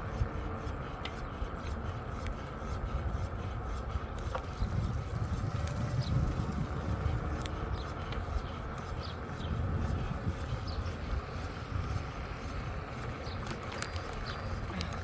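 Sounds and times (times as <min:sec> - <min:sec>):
bicycle road noise: 0:00.0 - 0:15.0
wind on microphone: 0:04.3 - 0:13.6
small clicks and rattles: 0:13.3 - 0:15.0.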